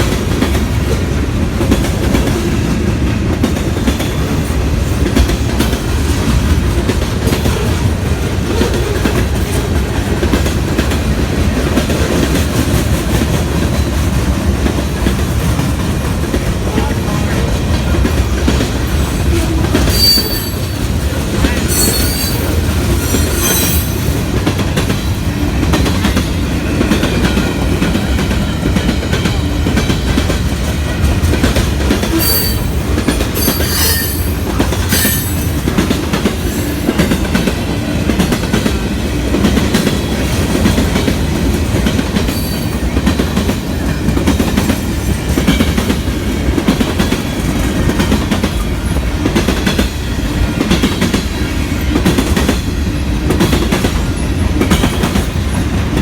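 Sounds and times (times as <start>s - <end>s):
train clanks: 0.0s - 56.0s
train wheels rumbling on rails: 0.0s - 56.0s
high wheel squeals: 19.8s - 21.0s, 21.6s - 24.2s, 32.1s - 35.6s.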